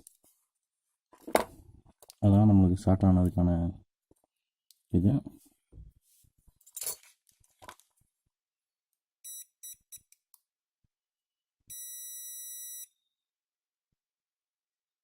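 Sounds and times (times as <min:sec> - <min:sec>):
multimeter continuity beeping: 0:09.2 - 0:10.2, 0:11.7 - 0:13.0.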